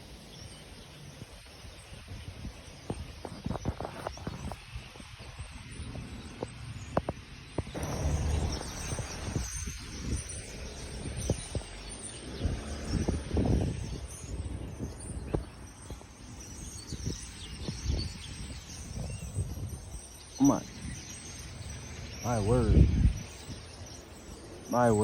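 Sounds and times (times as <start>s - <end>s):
birds chirping and calling: 7.7s - 25.0s
low outdoor rumble: 7.8s - 11.9s.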